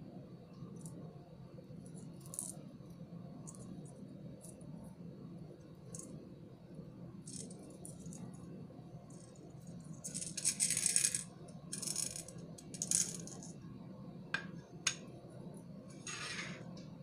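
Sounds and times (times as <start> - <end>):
small beads rattling: 7.3 - 8.2, 9.2 - 13.5.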